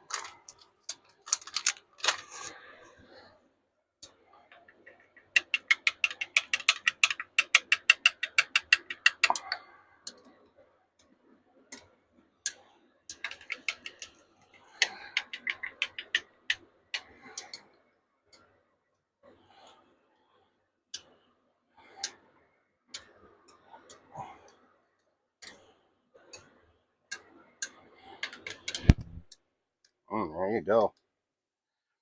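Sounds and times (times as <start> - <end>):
utensil tapping against a cup: 5.3 - 9.5, 14.8 - 16.2.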